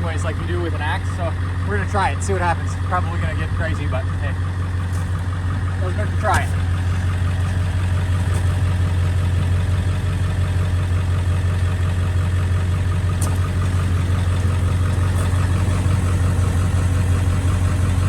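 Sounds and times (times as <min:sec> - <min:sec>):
pickup truck engine idling: 0:00.0 - 0:18.0.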